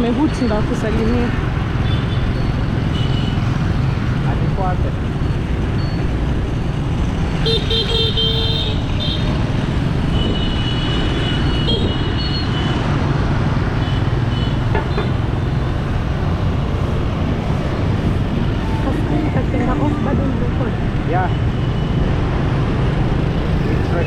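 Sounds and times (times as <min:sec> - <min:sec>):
road noise: 0:00.0 - 0:24.0
vehicle horns honking: 0:01.8 - 0:03.5, 0:07.4 - 0:09.4, 0:10.1 - 0:12.8, 0:18.3 - 0:22.0.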